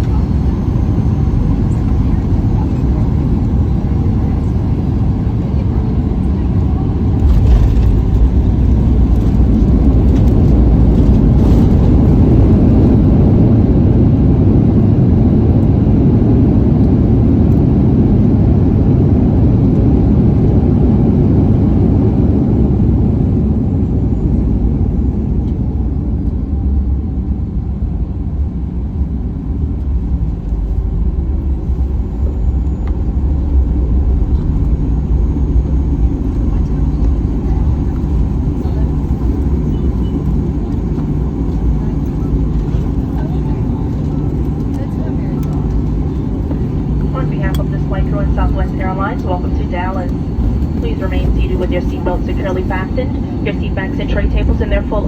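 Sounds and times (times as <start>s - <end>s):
aircraft cabin rumble: 0.0s - 55.0s
faint falling whine: 44.8s - 55.0s.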